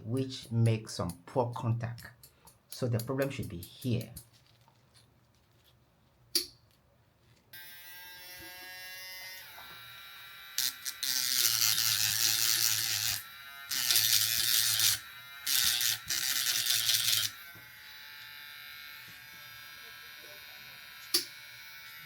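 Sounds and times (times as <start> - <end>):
tool grinding on metal: 7.8 - 19.6.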